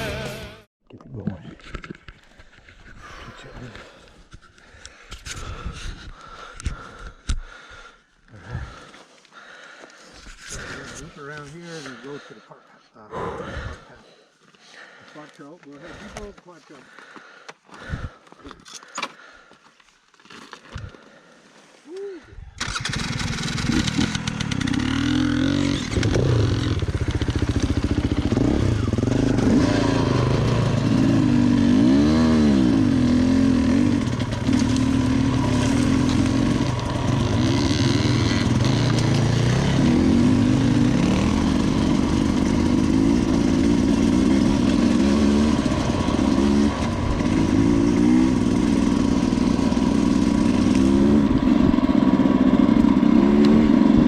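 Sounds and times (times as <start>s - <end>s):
dirt bike engine revving: 0.0s - 0.7s, 22.6s - 54.0s.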